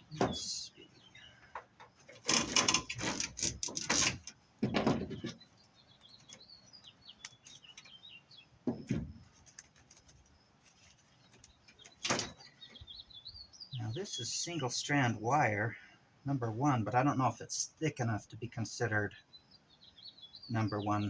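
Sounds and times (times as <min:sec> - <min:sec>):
small birds chirping: 0:00.0 - 0:21.0
metal cable scraping and rattling: 0:01.8 - 0:05.4.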